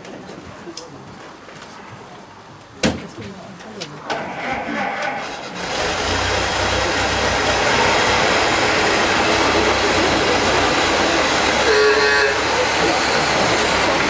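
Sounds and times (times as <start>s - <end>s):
car engine starting and running: 5.4s - 11.6s.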